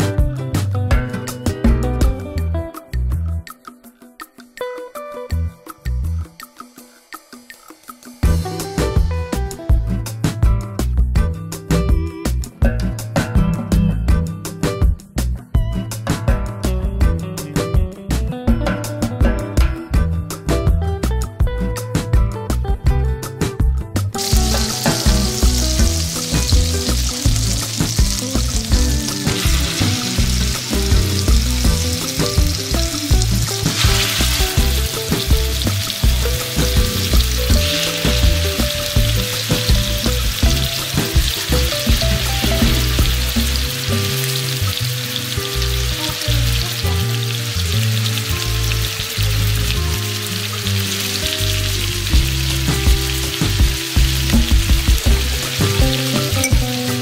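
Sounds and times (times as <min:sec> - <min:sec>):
soft background music: 0:00.0 - 0:57.0
chicken frying in sizzling fat: 0:24.1 - 0:57.0.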